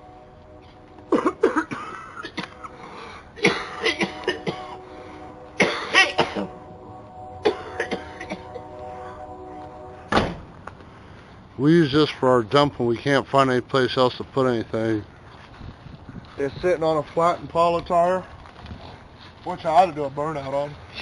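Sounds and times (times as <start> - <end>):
man coughing: 1.1 - 2.8, 3.4 - 4.8, 5.6 - 6.6, 7.4 - 8.7.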